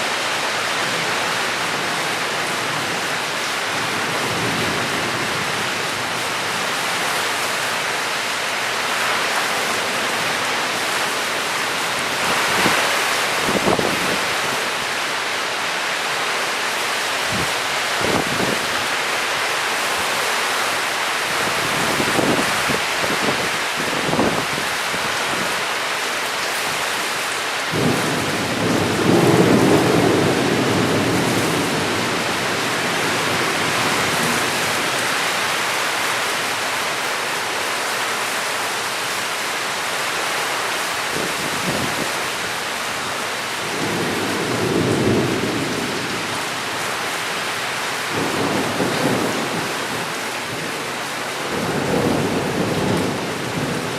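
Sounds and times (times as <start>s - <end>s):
heavy rain hissing: 0.0s - 53.9s
rolling thunder: 27.7s - 34.4s.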